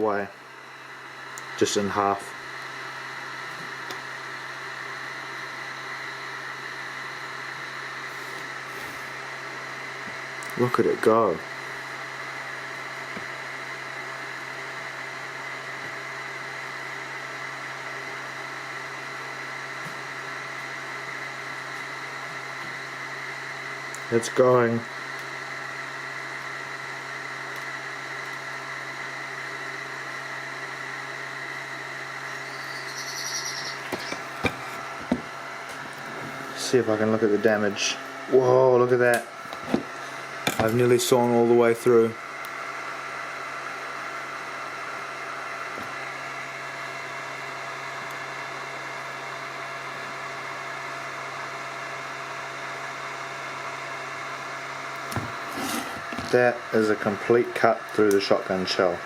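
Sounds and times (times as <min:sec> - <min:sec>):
low electrical hum: 0:00.0 - 0:47.4
laser humming and hissing: 0:03.5 - 0:13.2, 0:31.6 - 0:38.6
faint high whining tones: 0:32.2 - 0:34.8.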